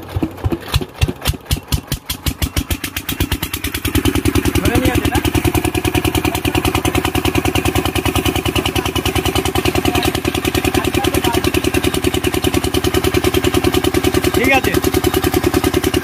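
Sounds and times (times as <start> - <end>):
single-cylinder diesel engine running: 0.0 - 16.0.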